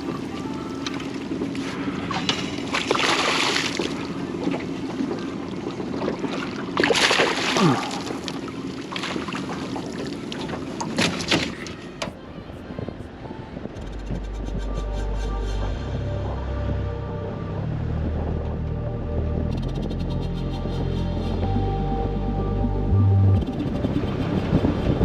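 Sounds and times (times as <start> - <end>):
water sloshing: 0.0 - 12.0
wind buffeting microphone: 11.6 - 16.9, 23.3 - 25.0
steady low hum: 12.4 - 25.0.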